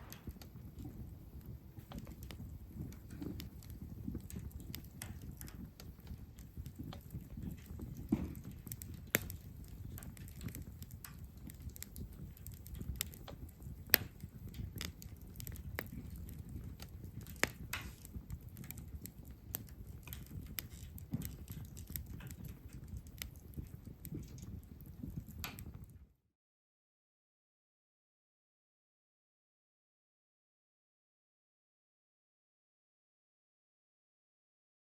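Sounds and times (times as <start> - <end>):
low rumble of flame: 0.0 - 26.2
wood fire crackling and popping: 0.0 - 26.2.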